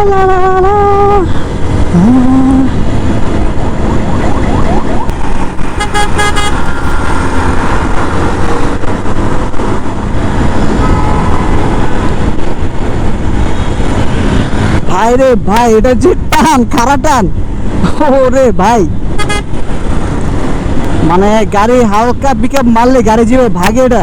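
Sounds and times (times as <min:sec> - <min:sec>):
motorcycle engine riding: 0:00.0 - 0:15.1
wind and road noise: 0:00.0 - 0:24.0
rapid horn beeps: 0:05.8 - 0:06.7.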